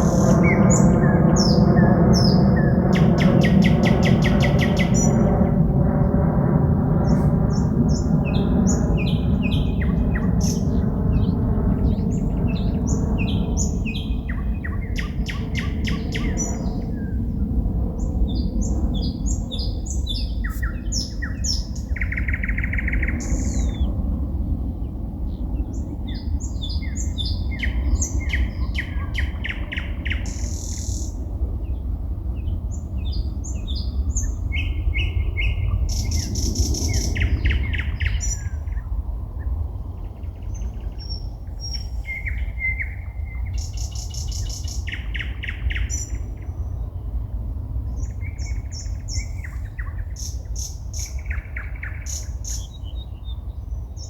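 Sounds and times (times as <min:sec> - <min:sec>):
birds singing: 0:00.0 - 0:05.6, 0:07.0 - 0:24.1, 0:24.8 - 0:54.0
low drone: 0:00.0 - 0:25.0.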